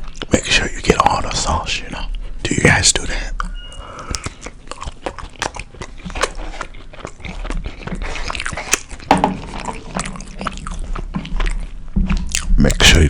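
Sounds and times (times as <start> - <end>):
close chewing with mouth clicks: 0.0 - 1.4, 3.4 - 12.9.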